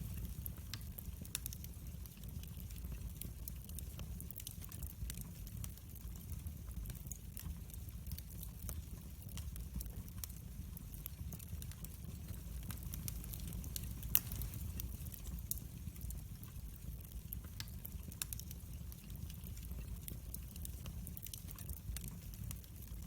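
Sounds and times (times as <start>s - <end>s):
wood fire crackling: 0.0s - 23.0s
sharp pops of fire: 11.4s - 15.7s.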